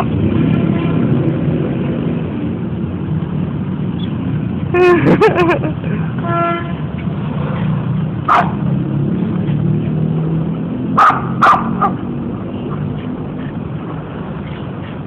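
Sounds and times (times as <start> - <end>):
dog barking: 8.3 - 8.6, 11.0 - 12.0.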